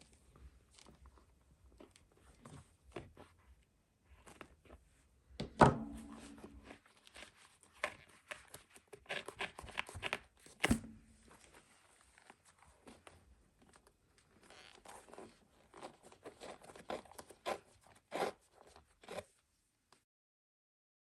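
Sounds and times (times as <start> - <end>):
sharp knocks with brief ring: 5.6 - 6.6
leather laces rubbing and scraping: 12.1 - 19.3.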